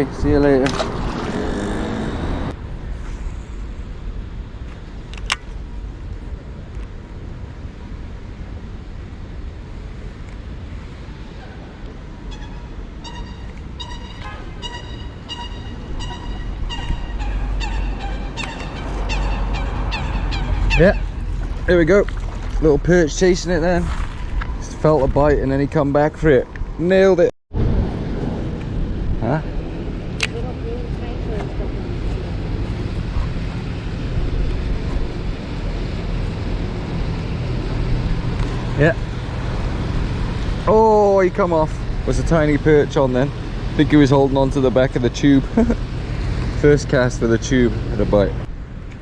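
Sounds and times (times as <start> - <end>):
wind rumbling on microphone: 0.0 - 49.0
waterbird honking: 12.3 - 21.6.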